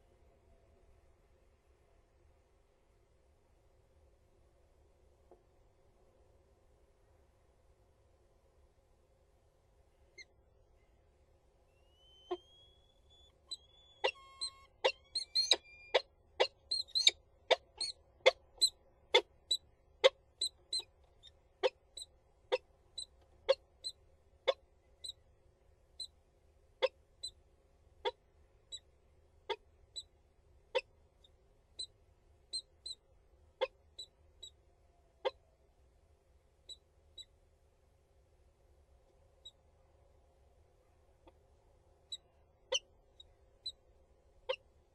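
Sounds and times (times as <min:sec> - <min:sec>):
falcon sharp calls: 0:11.9 - 0:18.4.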